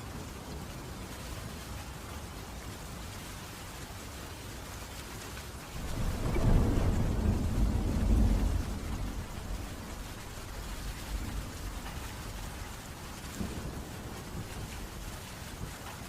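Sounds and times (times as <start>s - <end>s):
steady rainfall: 0.0s - 16.0s
thunder rumbling: 5.7s - 16.0s.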